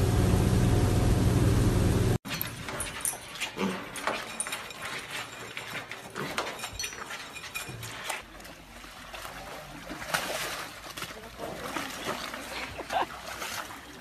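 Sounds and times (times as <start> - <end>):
elephant shifting in mud: 2.3 - 14.0
pig eating noisily: 2.5 - 10.2.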